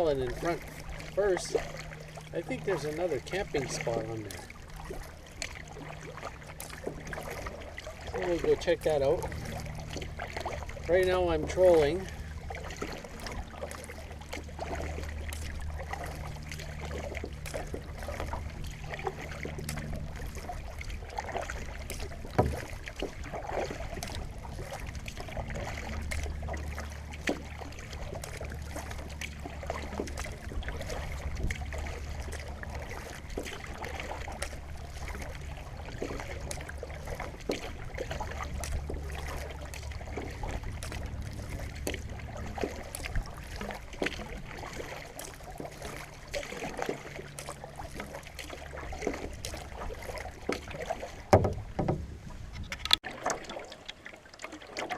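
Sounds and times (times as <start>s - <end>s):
low steady rumble: 0.0s - 53.8s
paddle dipping through water: 0.0s - 54.9s
water drips and splashes: 0.0s - 54.9s
sharp splash or knock: 21.3s - 35.3s, 47.9s - 52.1s.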